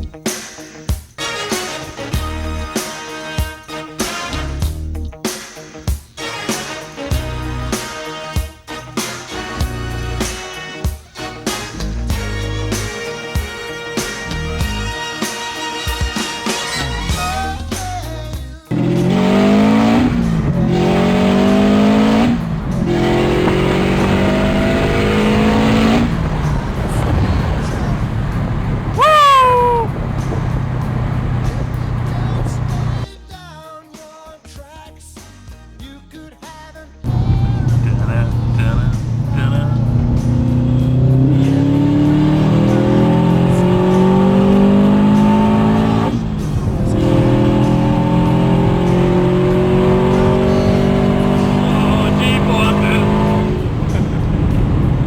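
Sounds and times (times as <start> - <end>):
intro music: 18.7 - 28.9, 37.1 - 55.0
turbocharged car engine accelerating: 18.7 - 33.0, 37.1 - 55.0.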